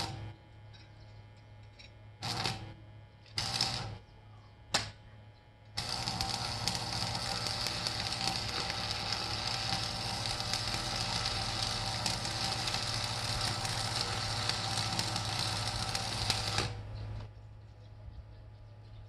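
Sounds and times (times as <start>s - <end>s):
arc welding crackling sizzle: 0.0s - 0.4s, 2.2s - 4.0s, 5.7s - 17.3s
low steady hum: 0.0s - 19.0s.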